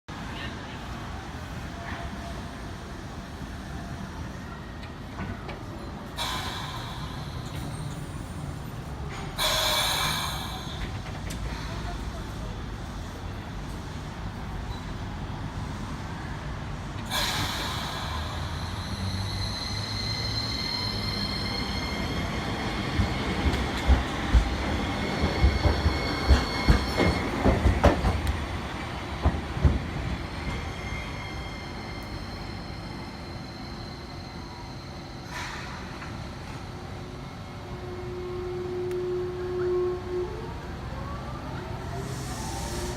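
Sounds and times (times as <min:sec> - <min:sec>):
tram wheels squealing: 0:03.7 - 0:12.4, 0:17.1 - 0:40.6.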